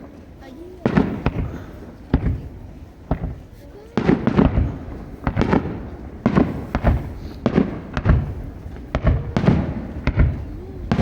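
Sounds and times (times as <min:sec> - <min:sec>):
fireworks bangs with rolling rumble: 0:00.0 - 0:11.0.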